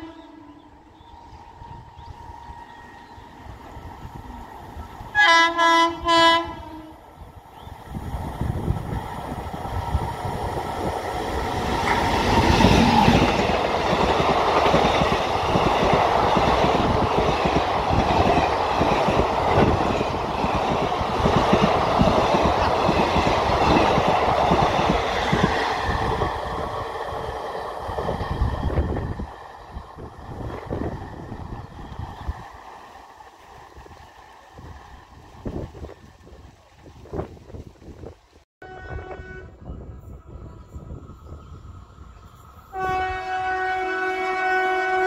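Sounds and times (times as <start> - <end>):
train passing with loud roar: 0.0 - 45.0
locomotive horn blasts: 5.2 - 7.0, 38.6 - 40.3, 42.7 - 45.0.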